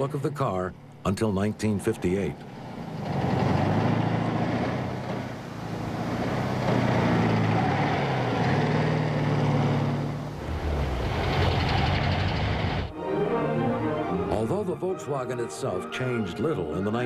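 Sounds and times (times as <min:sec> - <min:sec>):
car engine driving past: 0:02.2 - 0:12.9.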